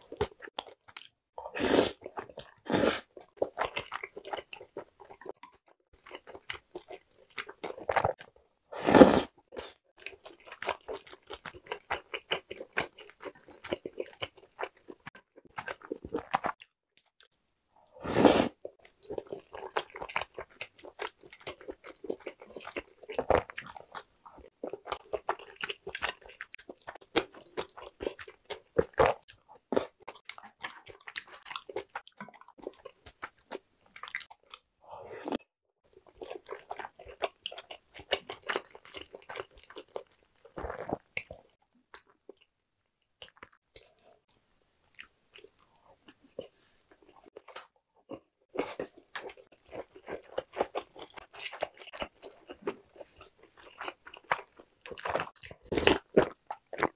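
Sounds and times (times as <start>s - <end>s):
chewing and biting food: 9.6s - 16.7s, 18.8s - 34.7s, 36.0s - 42.5s, 44.9s - 56.9s.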